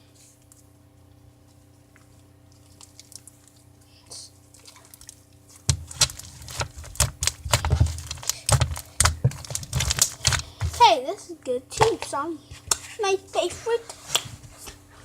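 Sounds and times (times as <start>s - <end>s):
slime squished by hand: 4.6s - 10.9s
sticky slime pops: 5.7s - 10.8s.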